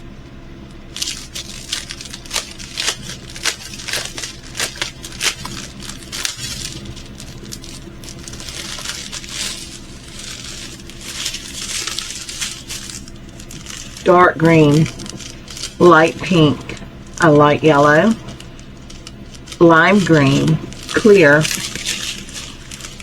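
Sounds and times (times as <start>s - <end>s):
plastic bags crinkling: 0.8s - 23.0s.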